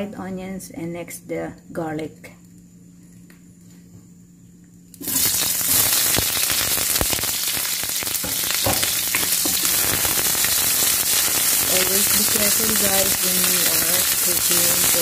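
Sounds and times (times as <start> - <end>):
onions sizzling in hot oil: 5.0 - 15.0.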